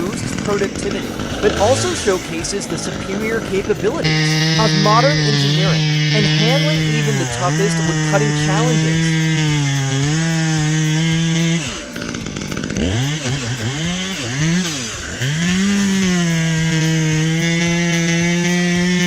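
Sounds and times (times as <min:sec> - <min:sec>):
chainsaw engine revving: 0:00.0 - 0:19.0.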